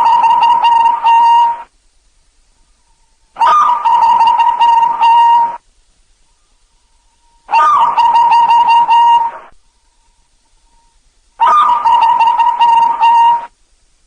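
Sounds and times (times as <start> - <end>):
dove cooing: 0.0 - 1.7, 3.4 - 5.6, 7.5 - 9.5, 11.4 - 13.5.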